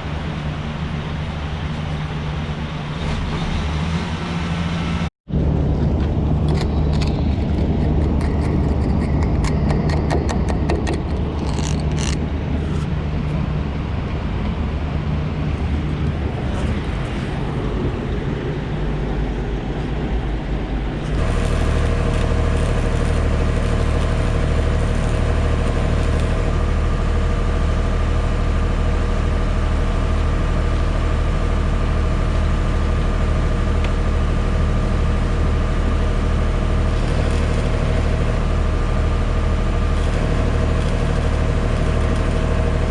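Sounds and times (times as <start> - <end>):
engine running steadily: 0.0 - 42.9
clicks and rattling: 6.4 - 12.2, 21.1 - 26.5, 36.9 - 38.2, 39.9 - 42.7.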